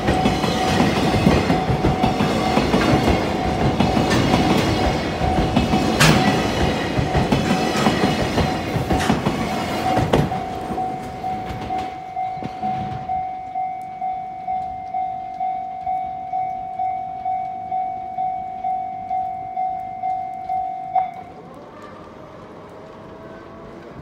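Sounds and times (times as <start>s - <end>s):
train wheels clacking over rail joints: 0.0s - 13.2s
level crossing warning bell: 0.0s - 21.4s.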